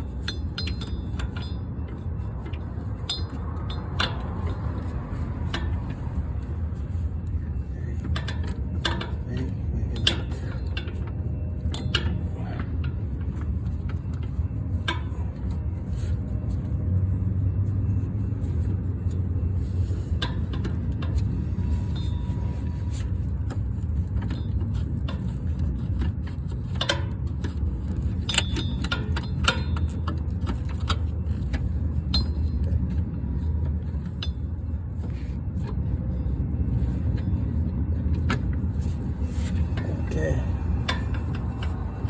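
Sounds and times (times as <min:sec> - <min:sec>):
metal tools clinking: 0:00.0 - 0:16.8
steady low rumble: 0:00.0 - 0:42.0.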